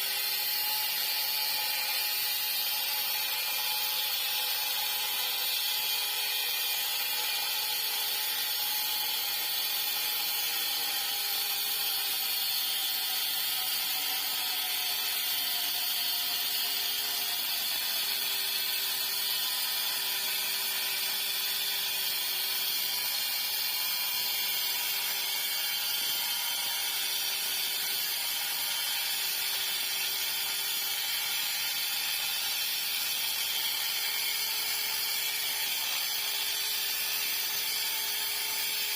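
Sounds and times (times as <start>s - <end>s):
power tool whining on metal: 0.0s - 38.9s.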